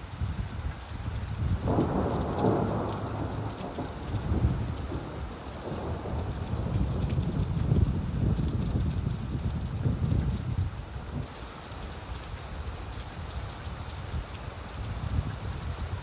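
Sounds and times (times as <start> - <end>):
steady rainfall: 0.0 - 16.0
low rolling thunder: 1.3 - 11.3.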